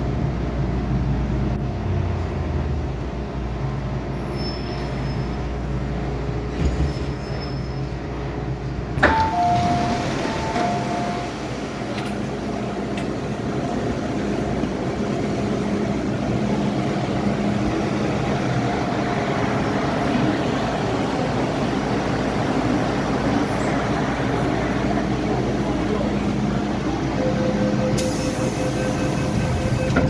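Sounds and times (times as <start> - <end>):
train rolling noise: 0.0 - 30.0
electric train motor hum: 9.1 - 30.0.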